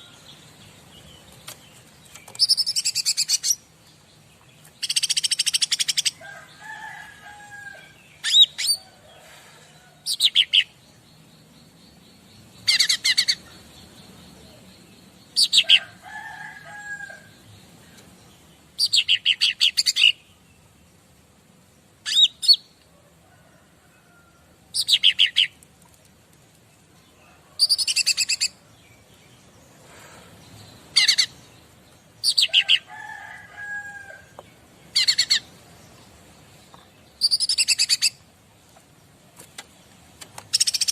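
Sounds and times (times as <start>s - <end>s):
songbird chattering: 37.1s - 38.2s.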